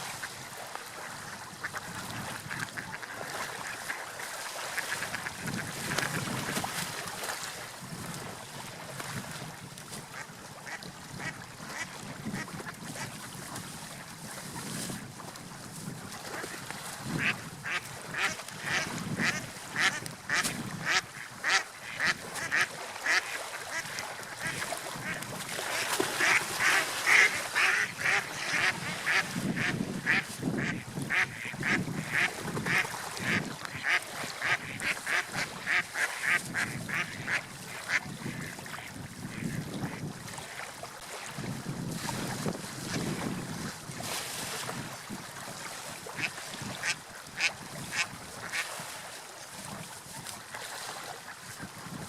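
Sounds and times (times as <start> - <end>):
ducks quacking: 1.0 - 4.0, 17.2 - 40.0, 46.1 - 48.7.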